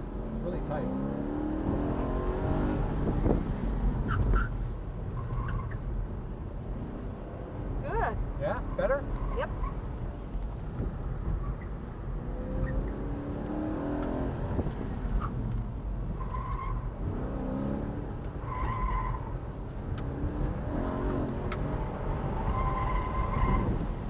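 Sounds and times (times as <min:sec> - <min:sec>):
car engine revving: 0:00.0 - 0:04.4, 0:12.0 - 0:19.3, 0:19.9 - 0:23.8.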